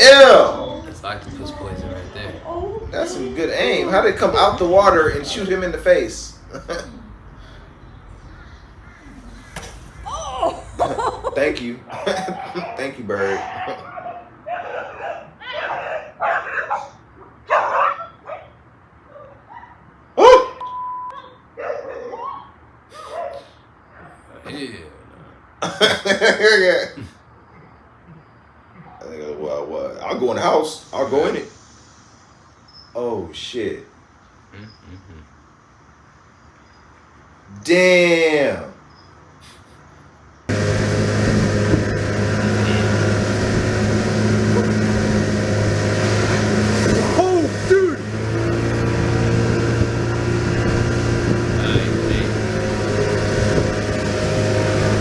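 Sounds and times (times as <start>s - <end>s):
loud sudden animal cry: 8.3s - 11.0s
motor droning: 8.4s - 11.6s, 40.5s - 55.0s.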